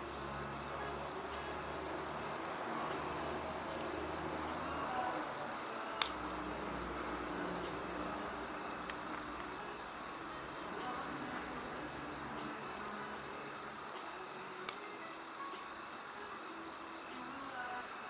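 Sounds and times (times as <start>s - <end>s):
crickets chirring: 0.0s - 18.0s
wood fire crackling: 1.8s - 15.0s.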